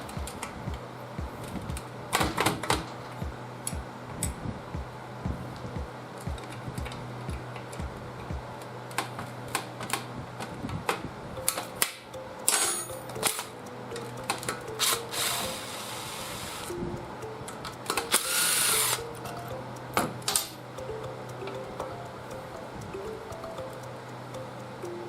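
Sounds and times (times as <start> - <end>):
soft background music: 0.0 - 25.0
tools clinking against metal: 12.5 - 13.4
power tool bursts: 14.8 - 16.7, 18.1 - 19.0.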